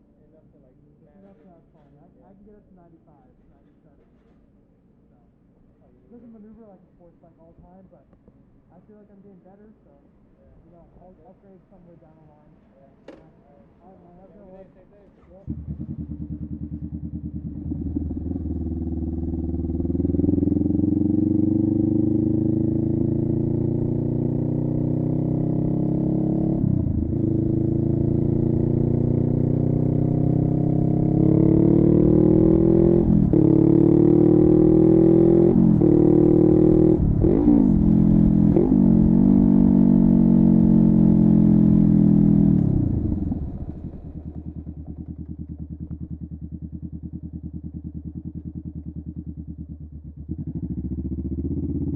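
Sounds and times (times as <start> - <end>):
motorcycle engine accelerating: 15.2 - 51.9.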